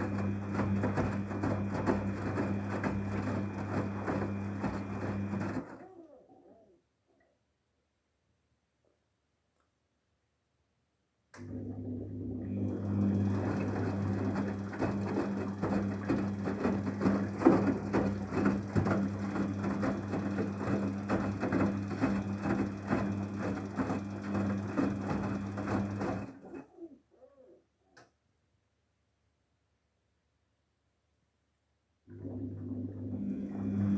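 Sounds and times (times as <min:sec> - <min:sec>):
water churning in drum: 0:00.0 - 0:05.8, 0:12.5 - 0:26.5
washing machine motor hum: 0:00.0 - 0:06.7, 0:11.4 - 0:27.4, 0:32.1 - 0:33.9.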